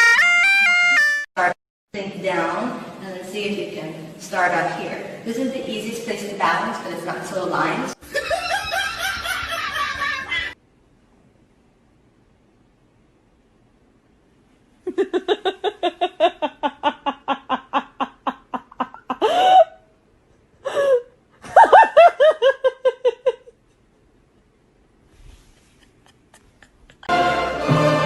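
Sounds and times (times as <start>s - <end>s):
person laughing hard: 8.0s - 10.6s, 14.9s - 19.8s, 20.6s - 23.6s, 25.6s - 27.1s.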